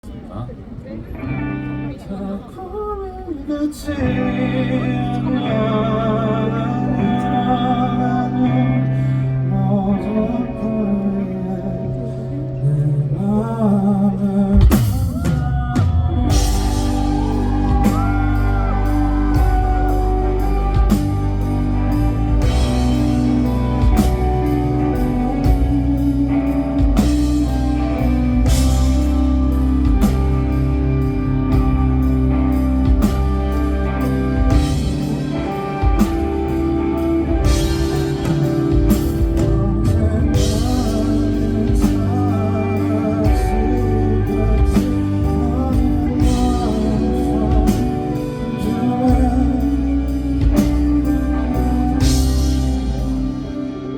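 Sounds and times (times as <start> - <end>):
guitar: 0.0 - 53.9
man singing: 1.9 - 32.2, 33.8 - 53.9
bass: 3.9 - 53.9
live band playing: 4.0 - 53.9
drum kit: 14.5 - 53.9.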